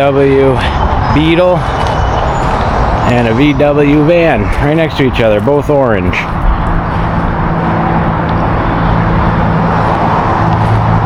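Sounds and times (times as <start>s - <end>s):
road noise: 0.0s - 11.0s
car engine running: 5.2s - 11.0s.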